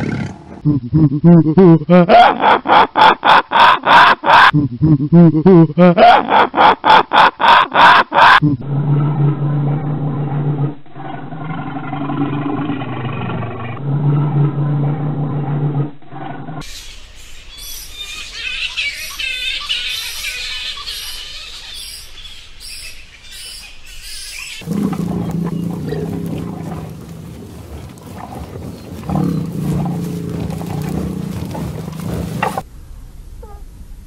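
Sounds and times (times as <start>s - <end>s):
bison bellowing: 24.6s - 32.6s.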